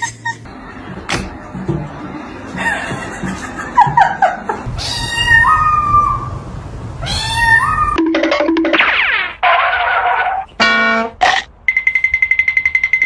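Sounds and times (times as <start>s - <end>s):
cat meowing: 4.7s - 6.4s, 7.0s - 8.0s.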